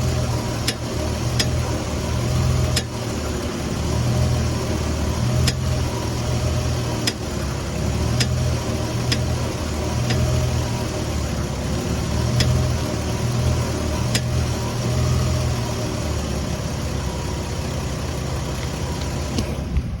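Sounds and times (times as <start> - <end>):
car engine idling: 0.0 - 20.0
sharp pops from steering: 0.6 - 1.7, 5.4 - 5.7, 7.0 - 7.3, 8.1 - 9.4, 10.0 - 10.3, 12.3 - 12.6, 14.0 - 14.4.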